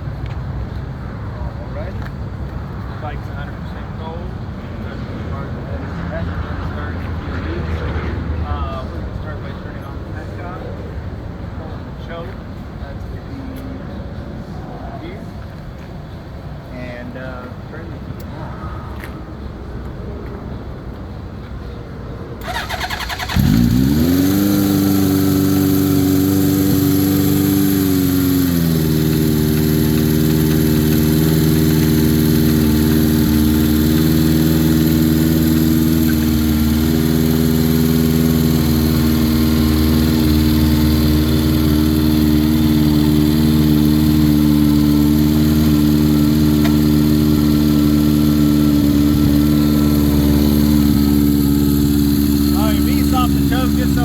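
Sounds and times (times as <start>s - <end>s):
motorcycle engine fast idle: 22.4s - 54.0s.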